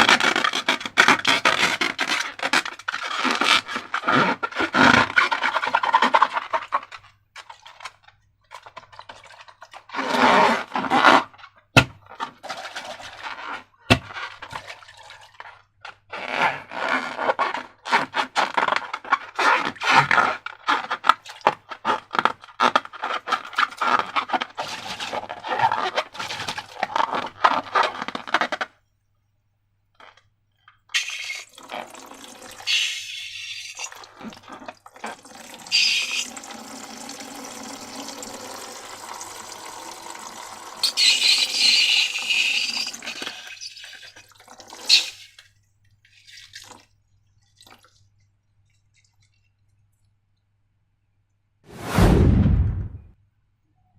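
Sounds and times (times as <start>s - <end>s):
thick liquid being poured: 12.4s - 15.7s, 31.0s - 41.4s, 42.1s - 50.2s.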